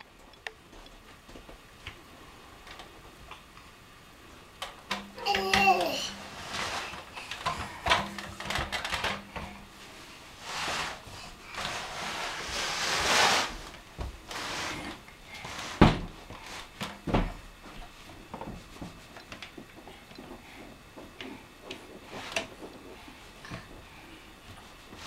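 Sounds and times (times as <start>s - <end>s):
furniture scraping along floor: 6.1s - 7.1s, 10.4s - 16.8s.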